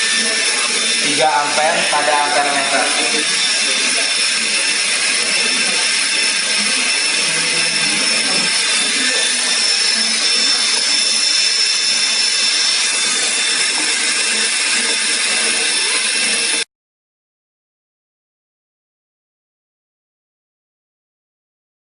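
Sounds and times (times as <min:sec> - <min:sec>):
motor-generator whirring: 0:00.0 - 0:16.7.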